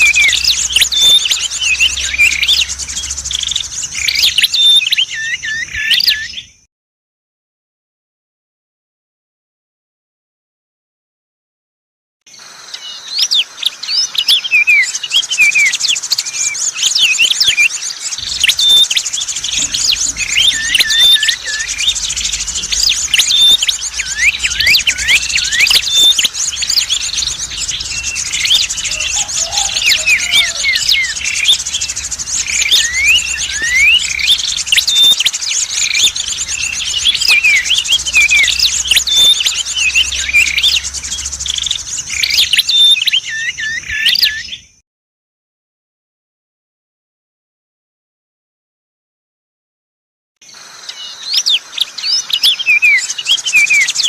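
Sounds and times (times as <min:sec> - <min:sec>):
faint low hum: 0:00.0 - 0:04.6, 0:18.2 - 0:42.6
small songbirds chirping: 0:00.0 - 0:06.7, 0:12.3 - 0:44.8, 0:50.4 - 0:54.0.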